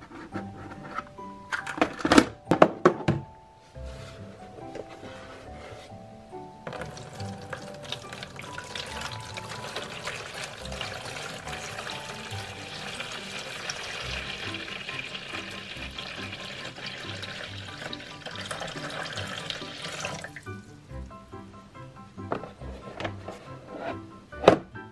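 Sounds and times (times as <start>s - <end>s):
water splashing into plastic basin: 6.7s - 20.6s.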